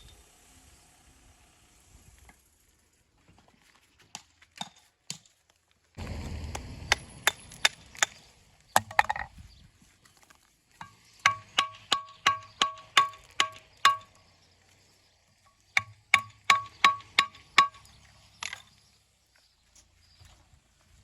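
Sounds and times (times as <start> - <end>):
hammer striking stone: 6.3 - 8.2, 8.8 - 9.3, 10.8 - 14.2, 15.8 - 18.7.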